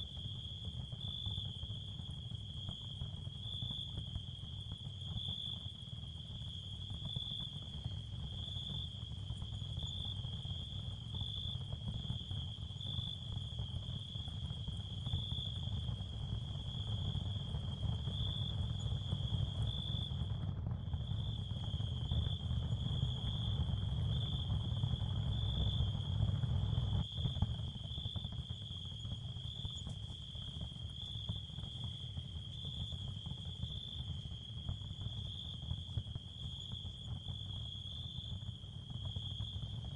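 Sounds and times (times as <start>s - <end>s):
high cricket-like chirring: 8.2s - 20.3s, 20.9s - 39.8s.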